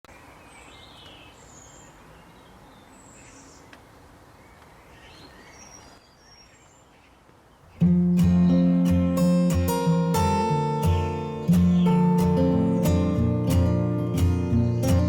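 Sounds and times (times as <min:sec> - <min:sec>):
small birds chirping: 0:00.0 - 0:15.0
faint click: 0:03.7 - 0:03.9.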